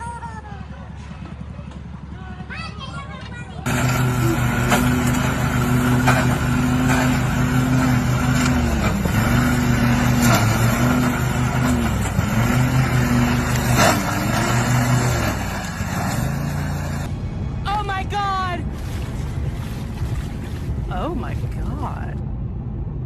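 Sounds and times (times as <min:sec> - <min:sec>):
vehicle engine running hard: 0:00.0 - 0:17.7.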